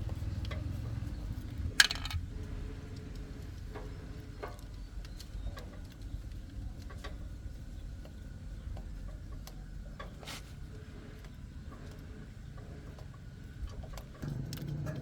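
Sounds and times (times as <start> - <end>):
low steady rumble: 0.0 - 15.0
hand tools and metal parts clicking: 1.7 - 2.2.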